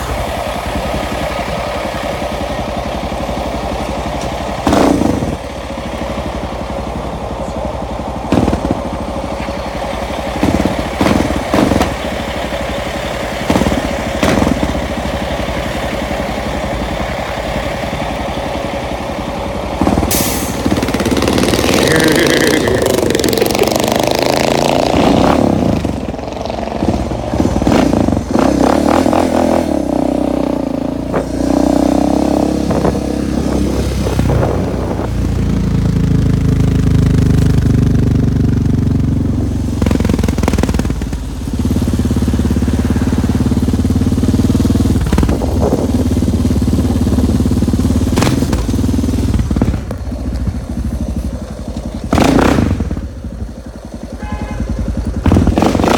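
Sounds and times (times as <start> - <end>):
dirt bike engine revving: 19.8 - 35.1, 52.0 - 53.3, 54.2 - 55.9.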